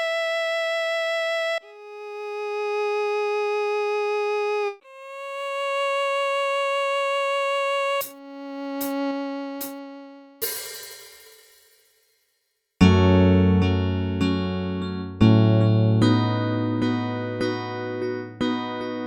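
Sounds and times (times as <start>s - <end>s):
synthesizer lead note with vibrato: 0.0s - 10.6s
cymbal crash: 10.4s - 12.0s
sharp percussive hits: 10.4s - 12.1s.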